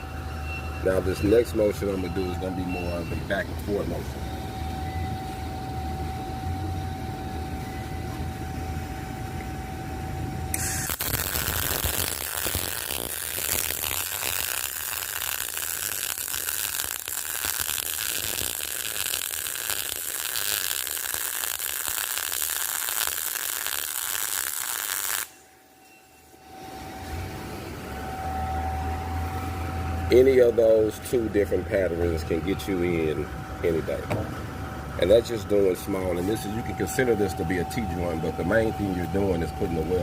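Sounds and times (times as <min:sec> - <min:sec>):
low machine hum: 0:00.0 - 0:20.1, 0:25.4 - 0:40.0
welding arc crackling: 0:10.5 - 0:25.5.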